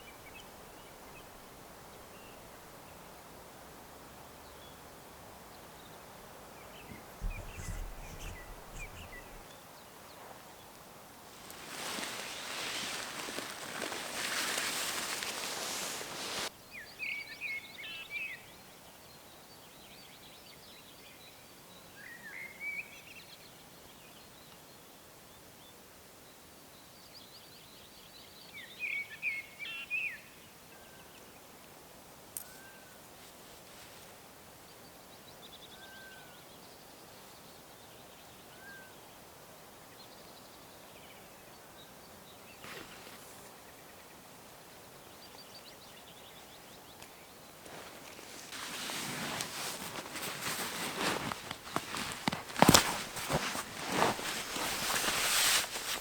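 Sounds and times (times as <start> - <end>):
songbird singing: 0.0 - 3.3, 4.2 - 10.8, 34.7 - 56.0
quiet forest background: 0.0 - 56.0
small birds calling and singing: 5.5 - 10.7
steady hiss: 11.2 - 16.5, 47.7 - 56.0.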